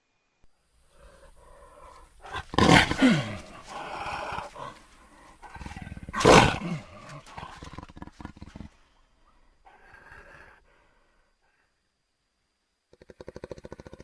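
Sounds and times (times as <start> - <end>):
rough rattling growl: 0.9 - 8.8
monster roars: 2.3 - 4.8, 5.5 - 7.6.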